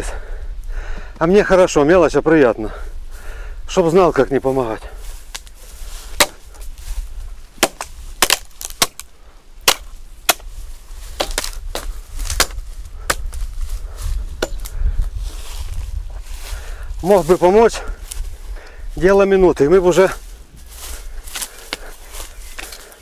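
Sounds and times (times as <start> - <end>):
chopping wood: 6.2 - 6.6, 7.6 - 13.4, 14.4 - 14.7.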